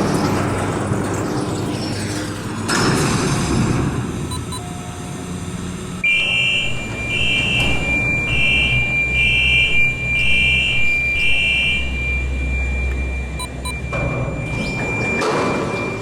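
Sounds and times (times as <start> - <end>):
short electronic beeps: 4.3 - 5.0, 6.1 - 16.0
steady high tone: 6.6 - 16.0.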